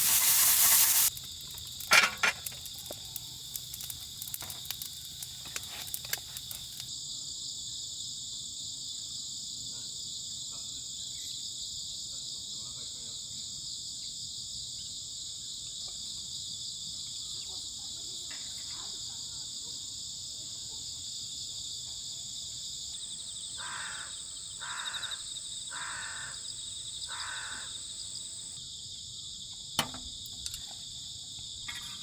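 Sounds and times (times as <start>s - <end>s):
crickets and insects trilling: 0.0s - 7.0s, 22.9s - 32.0s
light clicks and taps: 1.2s - 6.9s.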